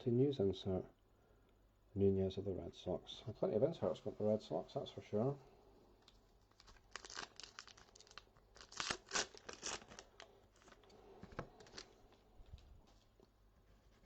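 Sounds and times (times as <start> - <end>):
wrapper crinkling and tearing: 6.4 - 12.2.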